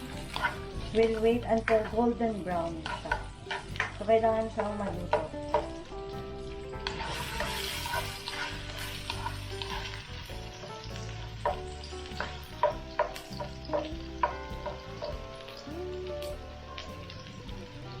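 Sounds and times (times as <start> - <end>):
ginger sizzling in hot oil: 0.0 - 18.0.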